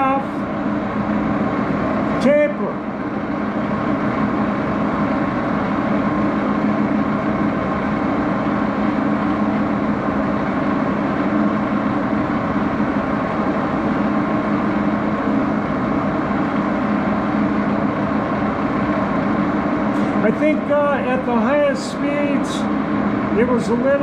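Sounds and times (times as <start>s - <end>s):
lathe running: 0.0s - 24.0s.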